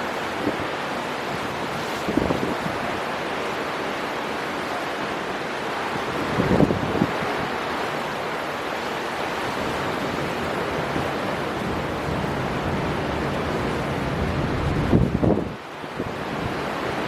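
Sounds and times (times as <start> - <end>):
sea surf: 8.9 - 15.0
storm wind: 9.3 - 15.4.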